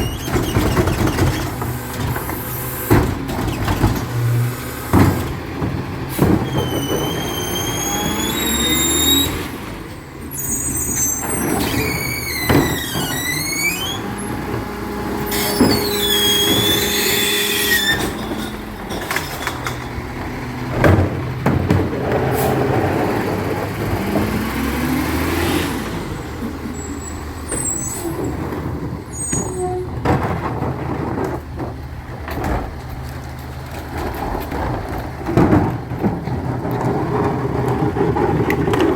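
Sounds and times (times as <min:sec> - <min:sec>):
knocks and clanks: 0:00.0 - 0:09.0, 0:10.6 - 0:24.8, 0:26.4 - 0:38.9
recycling truck running: 0:00.0 - 0:38.9
high-pitched wavering squeals: 0:15.3 - 0:18.9.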